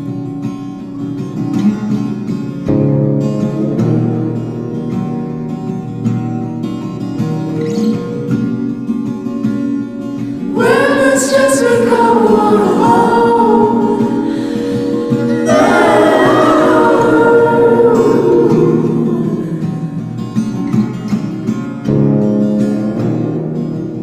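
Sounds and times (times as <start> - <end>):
person singing: 10.5 - 20.7
instrumental accompaniment: 12.9 - 24.0.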